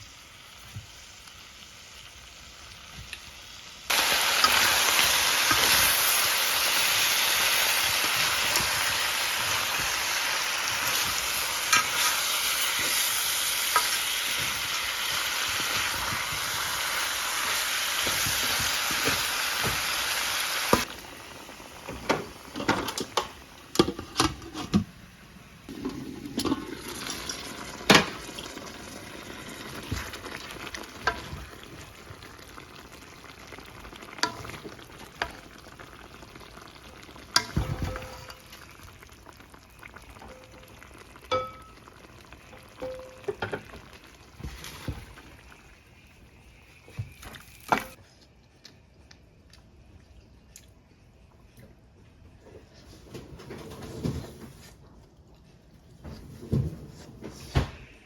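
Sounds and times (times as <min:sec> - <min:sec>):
food sizzling in a pan: 0:00.0 - 0:23.6, 0:25.7 - 0:48.0.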